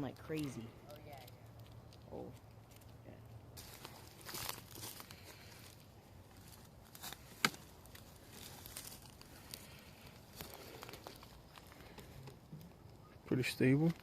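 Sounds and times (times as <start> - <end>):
faint rustling and scuffing: 3.6 - 9.5.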